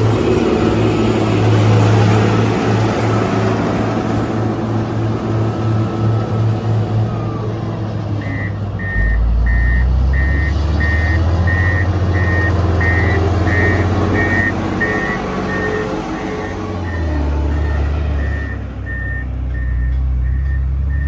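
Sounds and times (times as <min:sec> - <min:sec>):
diesel engine running: 0:00.0 - 0:21.0
reversing alarm beeping: 0:08.2 - 0:21.0.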